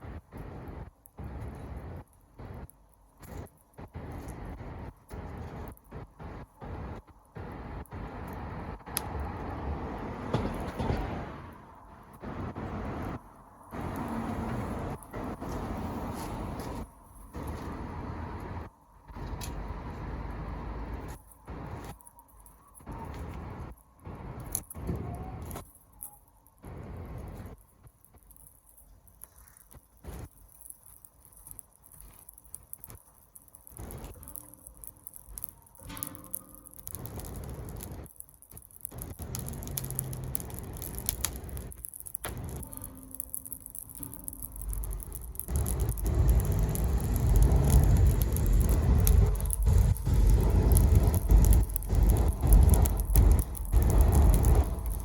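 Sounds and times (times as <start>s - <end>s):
campfire crackling: 0.0s - 55.0s
low rushing noises: 44.3s - 55.0s
wind buffeting microphone: 44.9s - 55.0s.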